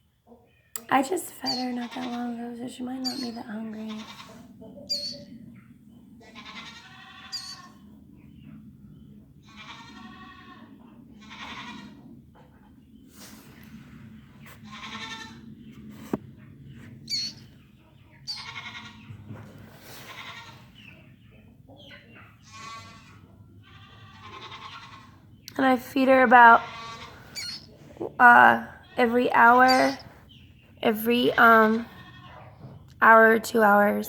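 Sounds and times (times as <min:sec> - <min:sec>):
killdeer chick calling: 0:01.4 - 0:01.8, 0:03.0 - 0:05.3, 0:06.5 - 0:07.8, 0:17.1 - 0:19.1, 0:24.3 - 0:31.6.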